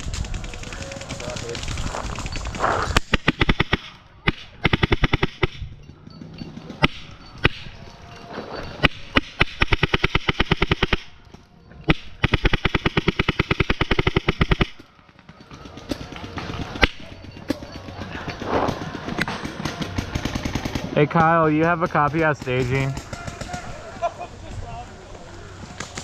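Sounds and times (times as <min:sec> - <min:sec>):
paintball marker firing: 0:00.0 - 0:05.7, 0:06.8 - 0:07.8, 0:08.8 - 0:11.2, 0:11.9 - 0:17.7.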